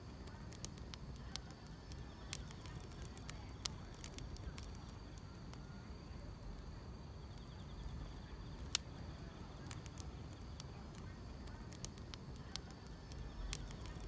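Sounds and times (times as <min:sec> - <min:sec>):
insects chirring: 0:00.0 - 0:14.0
wood fire crackling: 0:00.0 - 0:14.0.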